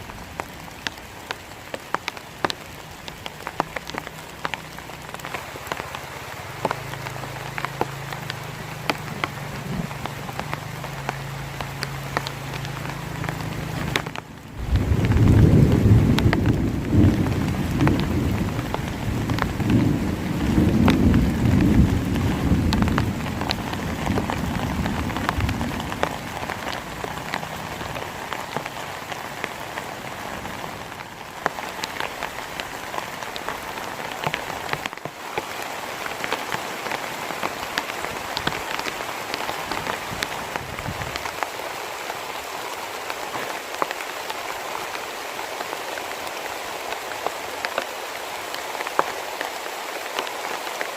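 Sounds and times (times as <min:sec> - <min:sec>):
heavy rain falling: 0:00.0 - 0:50.9
raindrops ticking: 0:00.0 - 0:50.9
low rumble of thunder: 0:14.6 - 0:26.7.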